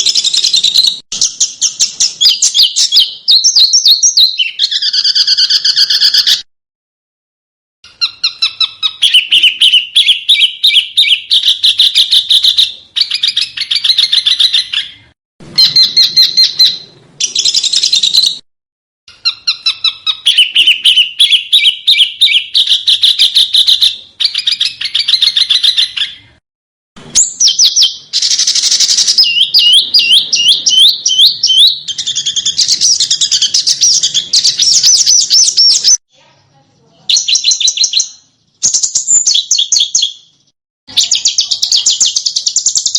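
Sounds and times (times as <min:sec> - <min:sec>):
songbird trilling: 0:00.0 - 0:06.4, 0:07.9 - 0:18.4, 0:19.1 - 0:26.3, 0:27.2 - 0:36.0.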